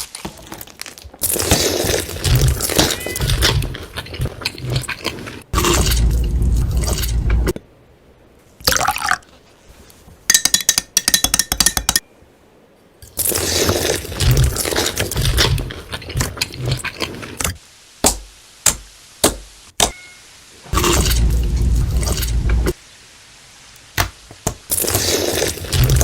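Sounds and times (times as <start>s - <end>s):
crunching and chewing food: 0.0s - 7.6s, 13.0s - 17.6s, 20.8s - 22.8s, 24.7s - 26.0s
handling noise: 0.0s - 7.6s.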